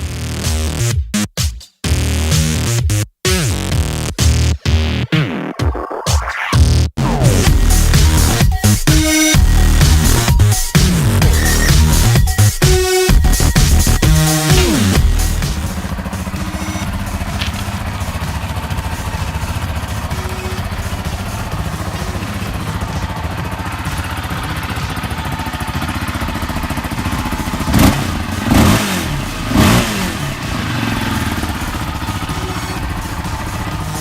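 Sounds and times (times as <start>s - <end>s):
vehicle engine idling and revving: 7.0s - 34.0s.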